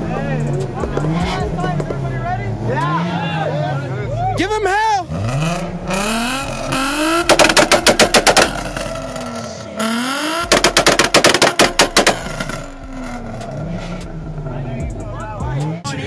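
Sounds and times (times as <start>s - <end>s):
car engine revving: 0.0s - 16.0s
exhaust cracks at rev limiter: 5.1s - 15.8s.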